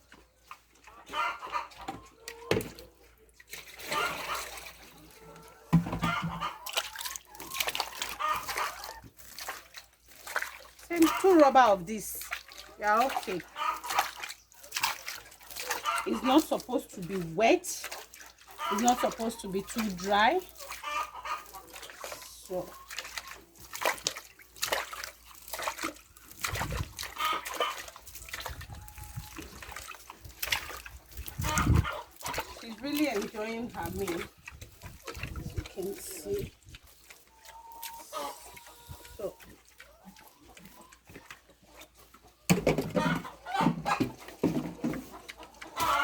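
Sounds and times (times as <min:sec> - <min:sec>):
pig slurping wet feed: 0:00.0 - 0:46.0
farm animals crying: 0:00.4 - 0:03.2, 0:03.8 - 0:09.3, 0:12.8 - 0:14.8, 0:15.4 - 0:16.8, 0:17.9 - 0:23.7, 0:27.0 - 0:30.0, 0:31.3 - 0:32.7, 0:36.9 - 0:44.3, 0:45.0 - 0:46.0.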